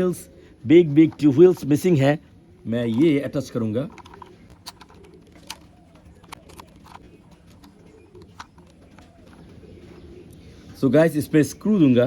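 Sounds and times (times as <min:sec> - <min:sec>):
plastic toy parts clicking: 0:03.8 - 0:09.1.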